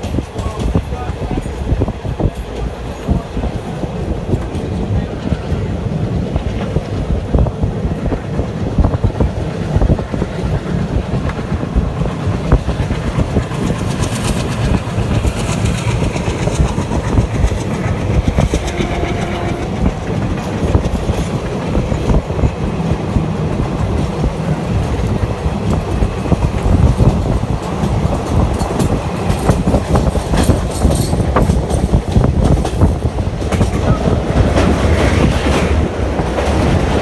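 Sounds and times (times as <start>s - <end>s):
train rumbling: 0.0s - 37.0s
wheels clattering over rail joints: 0.0s - 37.0s
hissing rattle: 12.1s - 19.2s.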